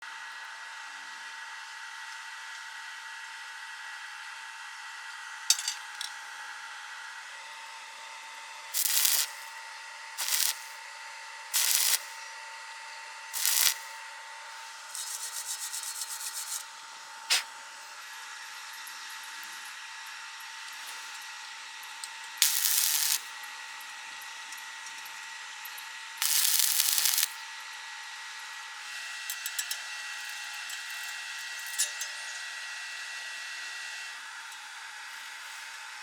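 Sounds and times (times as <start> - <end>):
electrical hum: 8.8 - 9.6, 10.2 - 10.8, 11.6 - 12.2, 13.4 - 16.6, 22.4 - 23.4, 26.2 - 27.4
welding arc crackling: 8.8 - 9.6, 10.2 - 10.8, 11.6 - 12.2, 13.4 - 14.0, 14.9 - 16.6, 17.3 - 17.5, 22.4 - 23.4, 26.2 - 27.4.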